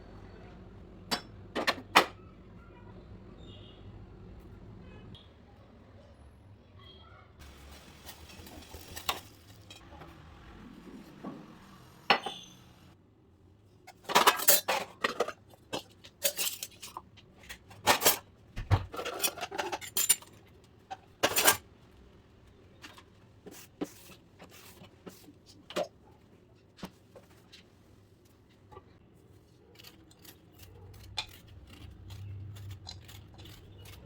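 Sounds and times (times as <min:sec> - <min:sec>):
metal utensils and dishes clinking: 0:07.4 - 0:10.0, 0:13.9 - 0:18.3, 0:18.9 - 0:21.7.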